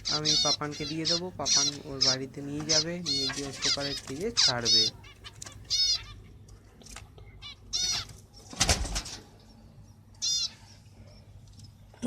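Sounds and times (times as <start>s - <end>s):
wing flapping: 0.0s - 5.8s
finch calling: 0.0s - 6.2s, 7.4s - 8.1s.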